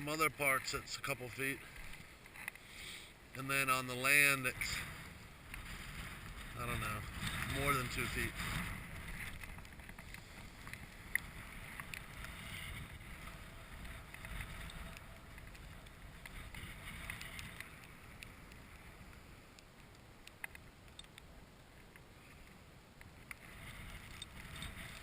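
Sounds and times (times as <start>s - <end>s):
light ticks: 1.8s - 2.7s, 9.2s - 25.0s
wind buffeting microphone: 4.1s - 19.2s, 23.3s - 25.0s.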